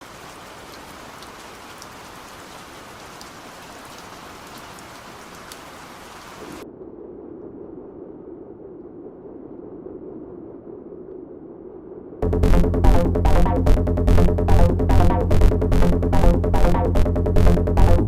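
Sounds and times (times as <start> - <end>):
rain falling: 0.0 - 6.6
raindrops: 0.0 - 6.6, 12.4 - 18.0.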